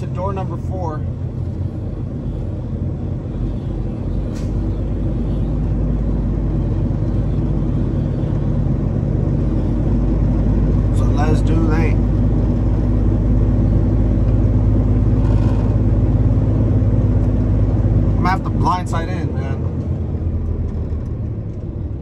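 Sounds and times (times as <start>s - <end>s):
diesel truck engine idling: 0.0s - 22.0s.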